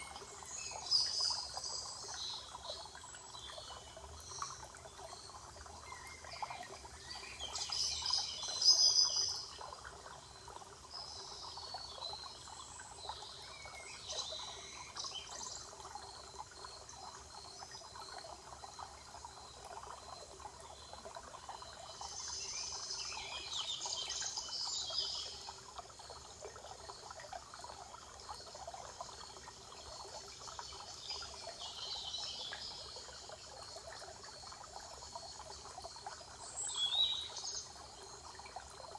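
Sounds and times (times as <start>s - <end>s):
songbirds chirping: 0.0s - 38.9s
trickle of running water: 0.0s - 38.9s.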